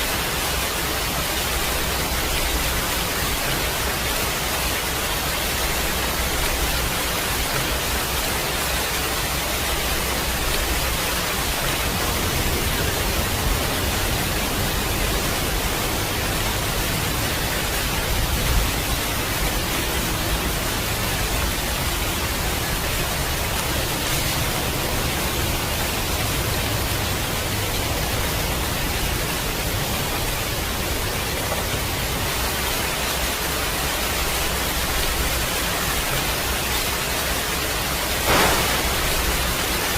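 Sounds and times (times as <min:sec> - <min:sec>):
heavy rain hissing: 0:00.0 - 0:39.9
distant thunder rumbling: 0:38.2 - 0:39.9.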